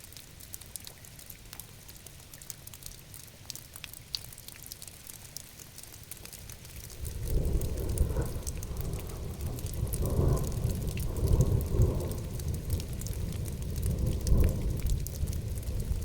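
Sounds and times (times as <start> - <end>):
rain falling: 0.0 - 16.0
sharp raindrop ticks: 0.0 - 16.0
rolling thunder rumble: 7.0 - 16.0.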